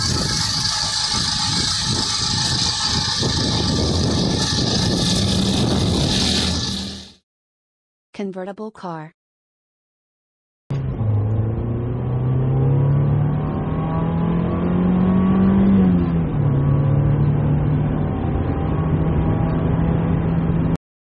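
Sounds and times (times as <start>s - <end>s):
car running with low hum: 0.0s - 7.2s, 10.7s - 20.8s.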